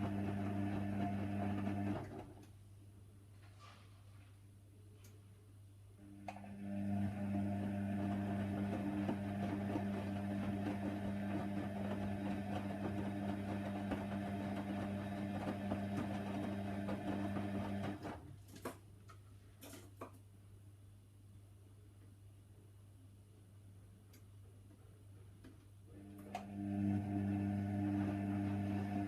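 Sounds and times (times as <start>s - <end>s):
washer dryer humming: 0.0s - 2.2s, 6.2s - 18.2s, 26.0s - 29.0s.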